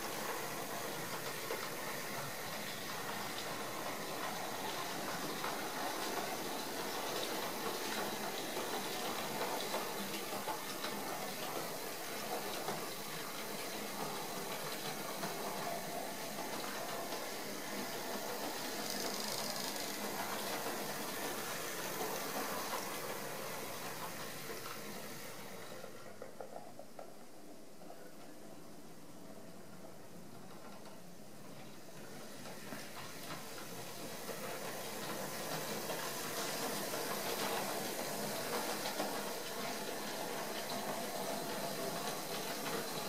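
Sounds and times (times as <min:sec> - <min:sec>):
train wheels rattling on track: 0:00.0 - 0:43.0.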